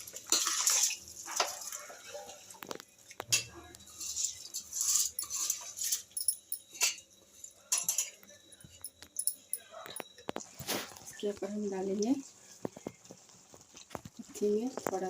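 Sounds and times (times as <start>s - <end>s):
metal utensil clinking pot: 3.2s - 10.0s.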